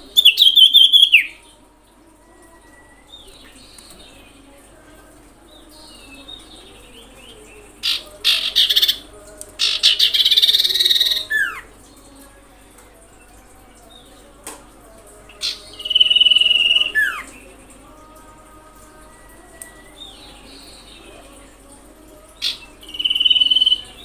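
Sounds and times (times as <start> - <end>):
bird calls: 0.0 - 1.4.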